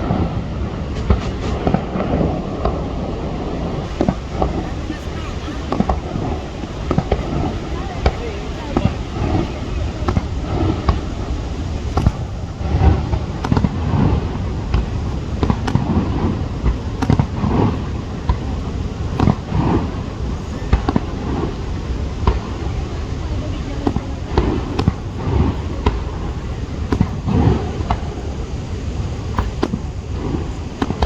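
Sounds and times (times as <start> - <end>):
fireworks bangs: 0.0 - 31.0
steady low rumble: 0.0 - 31.0.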